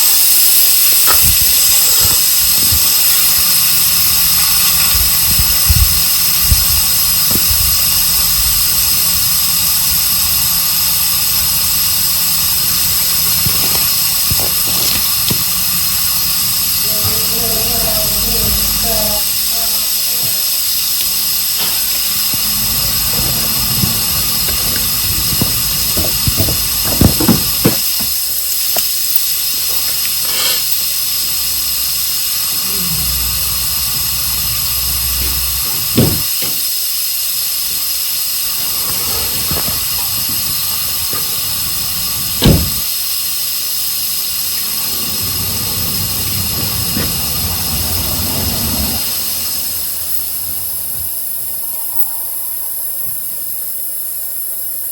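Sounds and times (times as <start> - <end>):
air compressor hissing and whining: 0.0 - 54.9
sharp knocks: 22.2 - 28.2, 36.0 - 36.6.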